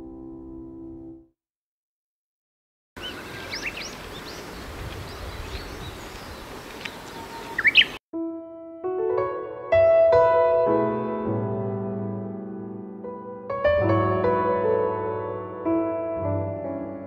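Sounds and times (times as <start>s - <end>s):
piano notes: 0.0s - 1.3s, 8.2s - 17.0s
small birds chirping: 3.0s - 8.0s
steady outdoor hiss: 3.0s - 8.0s.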